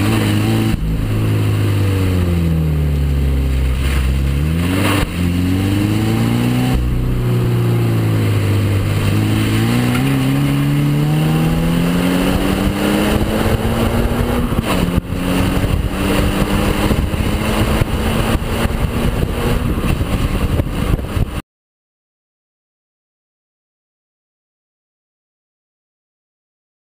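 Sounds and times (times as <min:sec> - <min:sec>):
car engine and exhaust revving: 0:00.0 - 0:21.4.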